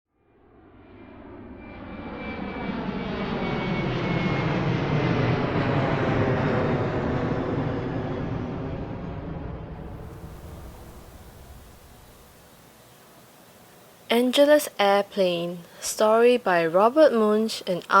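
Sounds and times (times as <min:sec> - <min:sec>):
airplane flying overhead: 0:00.1 - 0:12.8.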